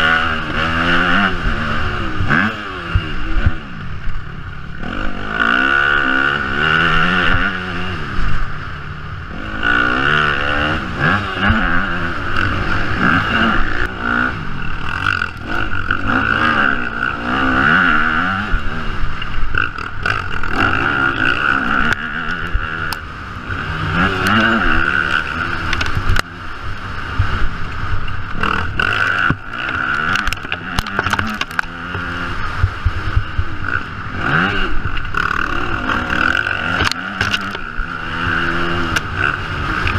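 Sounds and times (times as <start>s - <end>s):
motocross bike engine revving: 0.0s - 39.9s
knocks and clatter from bike: 28.0s - 33.5s, 36.1s - 37.8s.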